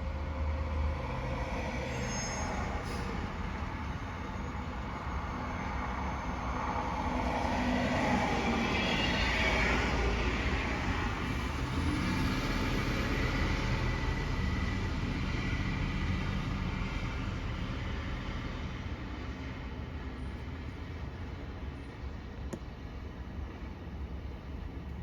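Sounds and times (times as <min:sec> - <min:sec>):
road and tyre noise: 0:00.0 - 0:25.0
truck engine rumble: 0:09.3 - 0:25.0.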